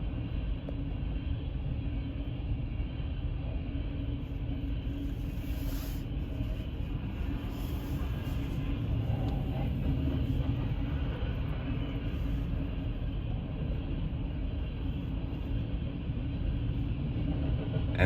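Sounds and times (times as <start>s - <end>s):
freight train rumbling past: 0.0s - 18.0s
train cars on rails: 0.0s - 18.0s.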